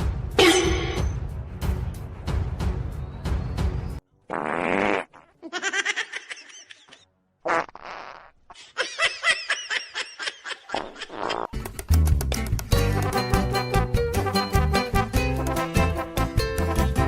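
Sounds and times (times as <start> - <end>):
raspy fart-like buzzing: 4.3 - 5.3, 7.4 - 8.4, 10.8 - 11.5.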